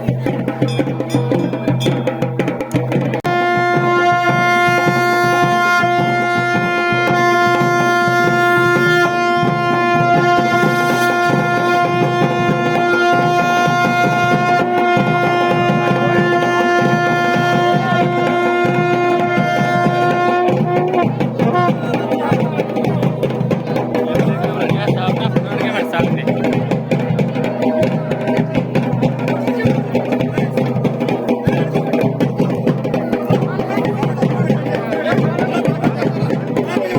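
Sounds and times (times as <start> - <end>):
drums beaten in a fast rhythm: 0.0 - 36.9
wind instrument holding a long note: 3.2 - 22.9.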